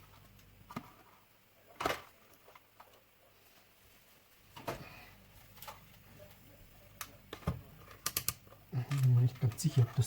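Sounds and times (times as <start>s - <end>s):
small parts clicking on workbench: 7.3s - 9.7s.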